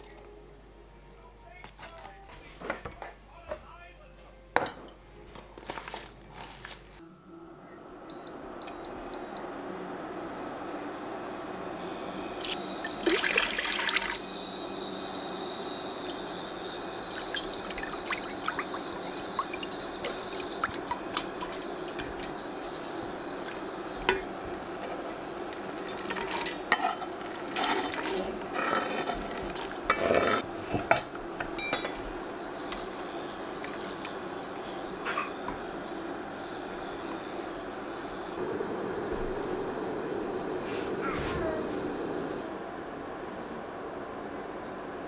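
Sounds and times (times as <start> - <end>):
water pouring and splashing: 12.4 - 14.2, 17.0 - 22.4.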